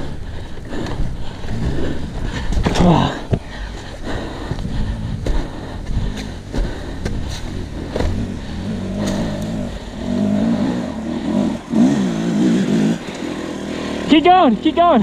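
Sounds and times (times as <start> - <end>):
dirt bike engine revving: 6.0 - 15.0.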